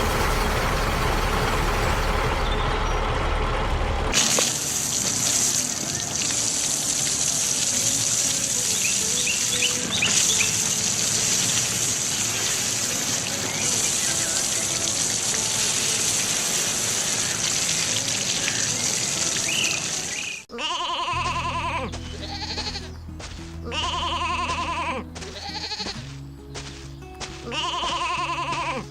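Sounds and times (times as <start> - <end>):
animal bleating: 20.5 - 23.0, 23.6 - 26.0, 27.4 - 28.9
low music tone: 21.2 - 28.8.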